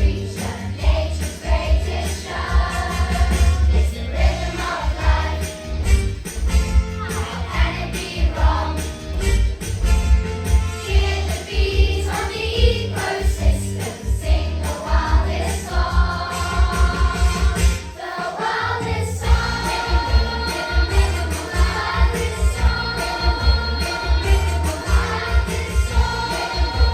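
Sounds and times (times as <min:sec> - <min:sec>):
children's choir singing: 0:00.0 - 0:05.8, 0:07.0 - 0:09.2, 0:10.8 - 0:26.9.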